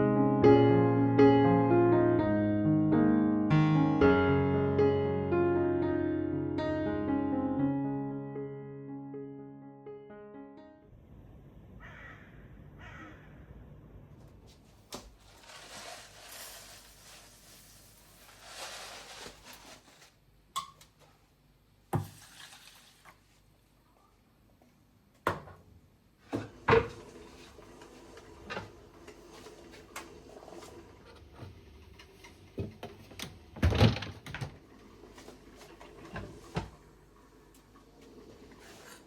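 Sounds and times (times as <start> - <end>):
soft hissing noise: 15.2 - 20.2.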